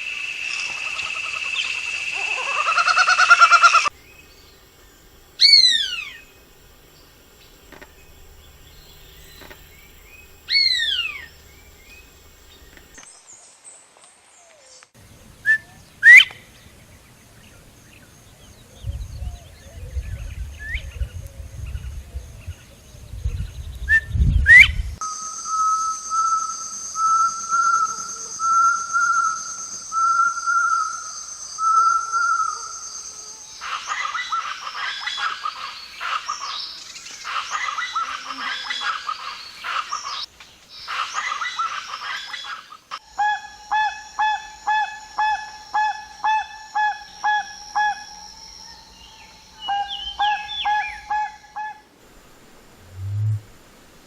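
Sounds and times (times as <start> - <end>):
birds calling: 0.5 - 13.3, 25.1 - 53.8
high-pitched buzz: 52.2 - 54.0.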